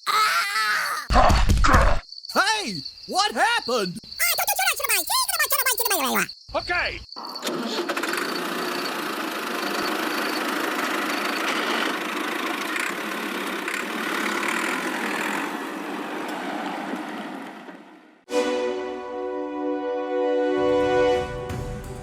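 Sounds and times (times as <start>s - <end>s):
motor running drone: 8.3s - 15.6s.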